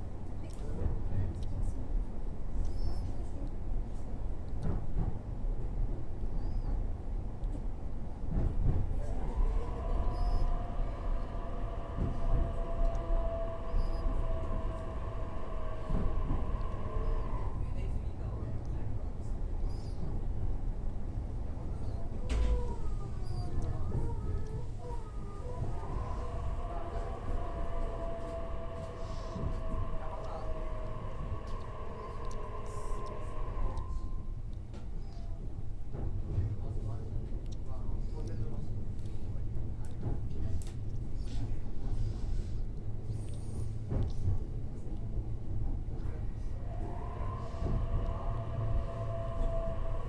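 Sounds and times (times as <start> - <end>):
train rumble: 0.0 - 50.0
electric train whine: 8.3 - 35.2, 41.8 - 50.0.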